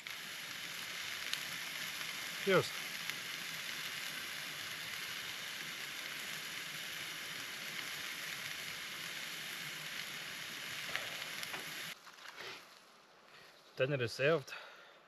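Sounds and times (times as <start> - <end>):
steaks sizzling in a pan: 0.0 - 12.0.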